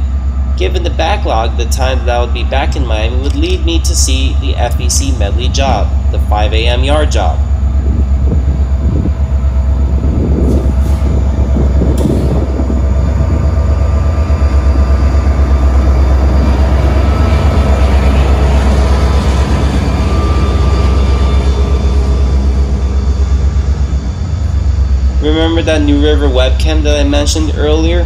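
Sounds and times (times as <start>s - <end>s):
faint whine: 0.0s - 28.0s
locomotive engine rumbling: 0.0s - 28.0s.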